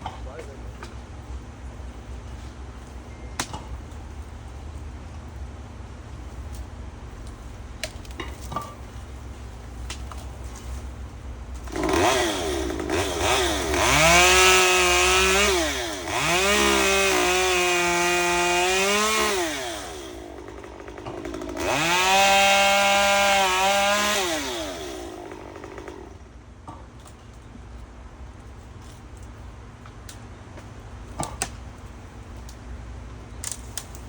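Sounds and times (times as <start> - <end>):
chainsaw revving: 11.6 - 26.2.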